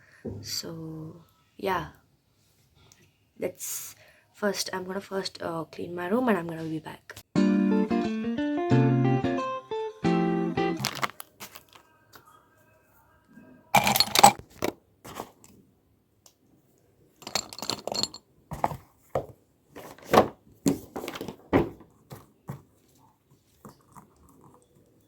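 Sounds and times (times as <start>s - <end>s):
rustling and crinkling of objects: 10.8s - 12.4s, 13.8s - 15.7s, 17.2s - 24.2s.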